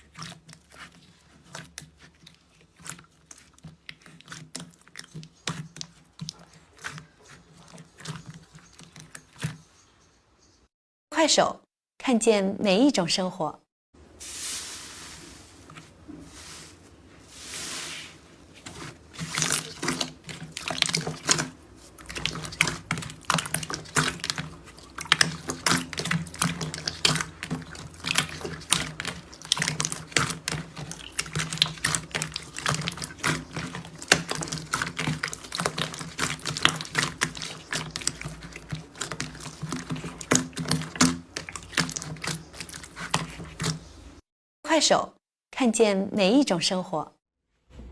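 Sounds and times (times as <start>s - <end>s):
soft hissing: 14.2s - 18.4s.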